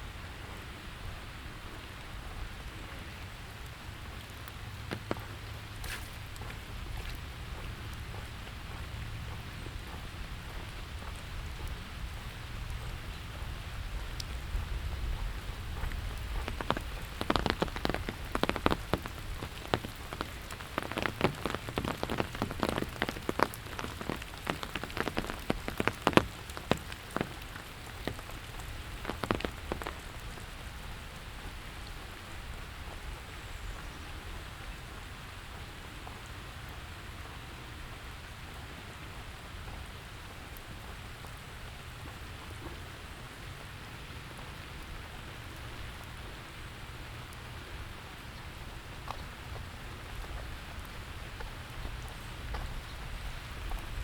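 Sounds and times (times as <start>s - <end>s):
steady rain: 0.0s - 54.0s
close drip taps: 1.8s - 34.0s.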